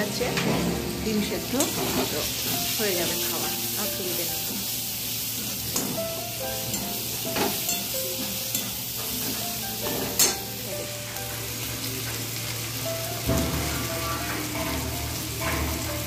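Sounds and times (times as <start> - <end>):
food sizzling in oil: 0.0 - 16.0
metal spatula scraping a pan: 13.3 - 16.0.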